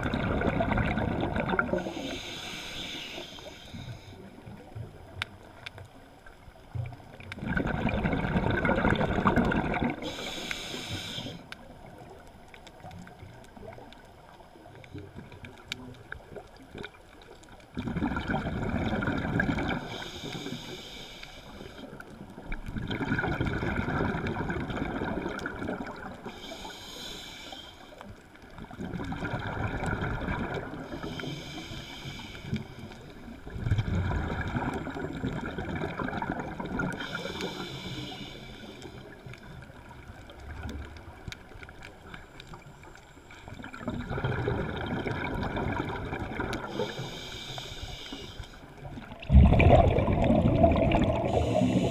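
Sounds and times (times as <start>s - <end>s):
exhaled bubbles rushing: 0.0s - 2.1s, 7.2s - 10.1s, 17.8s - 19.9s, 22.5s - 26.2s, 28.6s - 30.9s, 33.4s - 37.1s, 43.5s - 46.8s, 48.9s - 51.9s
regulator inhale hiss: 1.7s - 4.6s, 9.9s - 11.7s, 19.7s - 22.0s, 26.2s - 28.2s, 30.7s - 33.4s, 36.9s - 39.6s, 46.6s - 49.1s, 51.2s - 51.9s.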